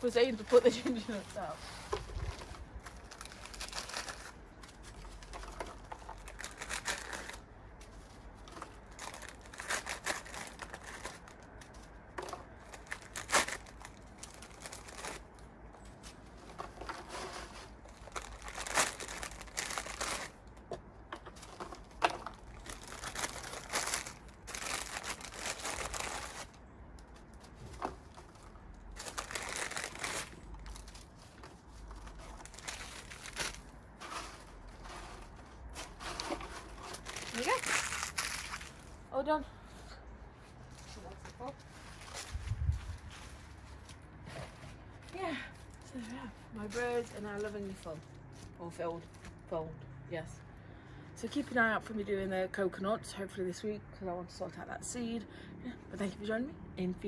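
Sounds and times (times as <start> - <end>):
biscuit packet crinkling: 8.0 - 11.7, 12.4 - 15.4, 17.8 - 20.6, 22.2 - 27.3, 28.0 - 33.8, 36.9 - 39.0.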